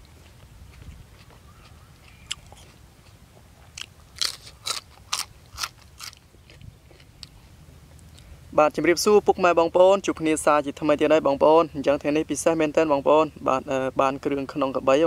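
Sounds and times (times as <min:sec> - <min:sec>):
crunching raw vegetable: 0:00.0 - 0:08.3.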